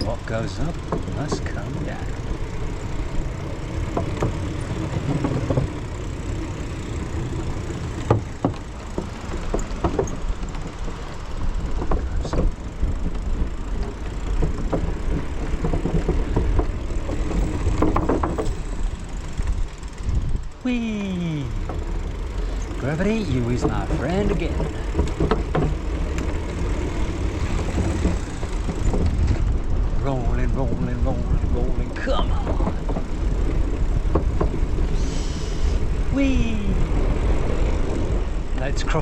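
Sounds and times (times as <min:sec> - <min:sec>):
wind rumble on microphone: 0:00.0 - 0:20.7, 0:21.5 - 0:39.0
bike knocks and rattles: 0:00.0 - 0:39.0.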